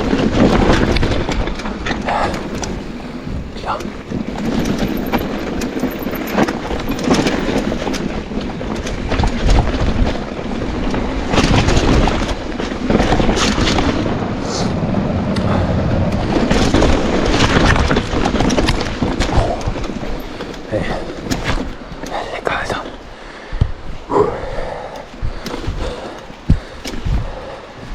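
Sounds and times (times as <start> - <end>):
bike frame and chain clatter: 0.0 - 14.0, 15.4 - 23.2
tyres rumbling over dirt and rocks: 0.0 - 27.9.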